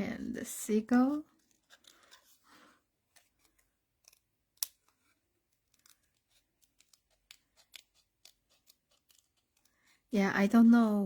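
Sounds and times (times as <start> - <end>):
scissors snipping paper: 3.1 - 9.8.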